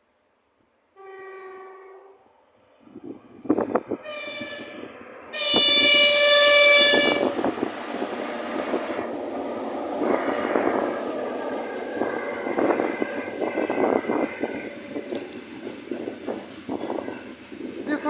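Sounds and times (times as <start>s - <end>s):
train horn blasts: 1.0s - 2.3s, 4.0s - 7.5s, 12.2s - 15.4s
train wheels clattering on rails: 5.5s - 18.0s.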